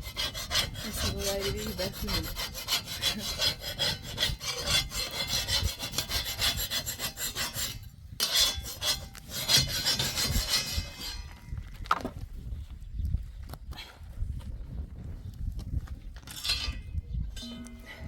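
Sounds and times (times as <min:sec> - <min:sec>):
rapid rasping scraping strokes: 0:00.0 - 0:11.4.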